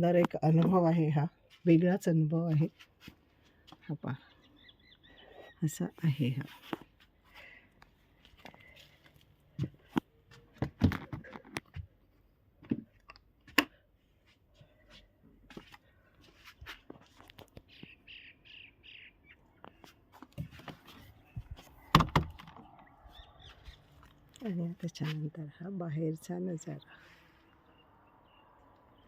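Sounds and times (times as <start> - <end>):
bird chirps: 4.1 - 6.2, 17.6 - 20.0, 20.8 - 24.2, 26.6 - 29.0.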